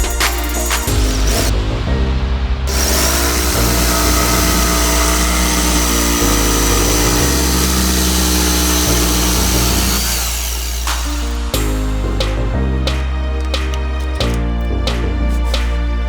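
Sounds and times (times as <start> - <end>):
music bass line: 0.0 - 16.0
electric power tool running: 0.9 - 1.5, 2.7 - 11.6.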